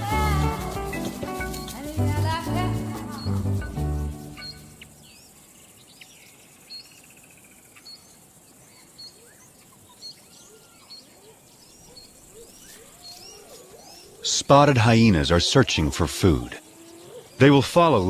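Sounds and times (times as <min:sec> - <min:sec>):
low rising bird notes: 0:00.0 - 0:07.1
outdoor hiss: 0:00.0 - 0:18.0
high bird chirps: 0:00.6 - 0:14.5.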